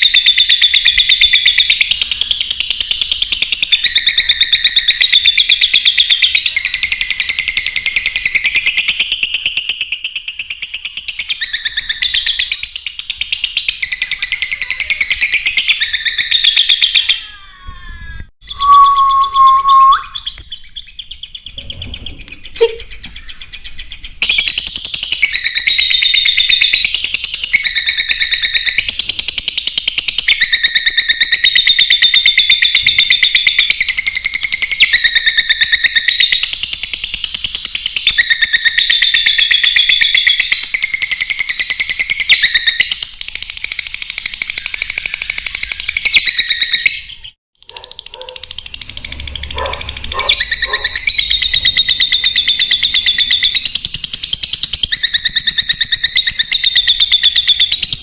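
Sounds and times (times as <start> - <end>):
lovebirds chattering and chirping: 44.2 - 58.0.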